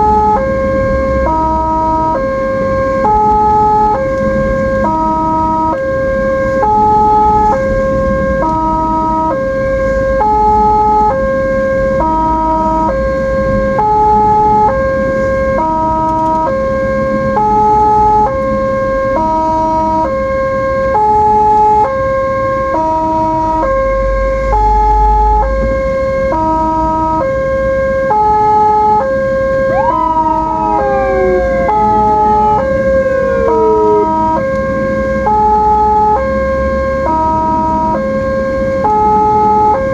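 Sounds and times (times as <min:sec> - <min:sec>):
ambulance two-tone siren: 0:00.0 - 0:39.9
road and engine hum: 0:28.5 - 0:37.9
siren sweeping up and falling: 0:29.2 - 0:35.9.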